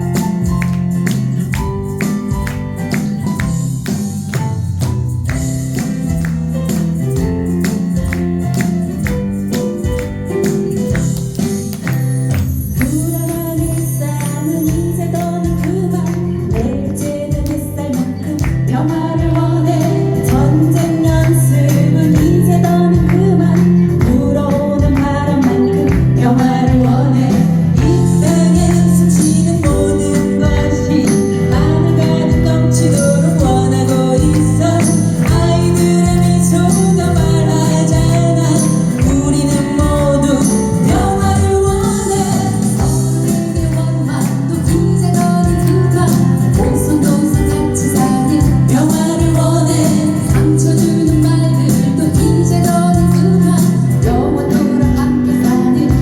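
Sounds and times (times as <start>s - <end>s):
pop song sung by several voices: 12.8s - 56.0s.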